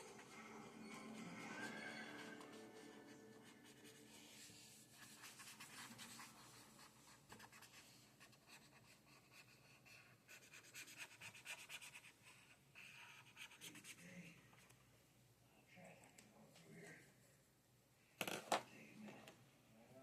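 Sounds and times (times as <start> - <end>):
drawing tool scratching paper: 2.3 - 14.1.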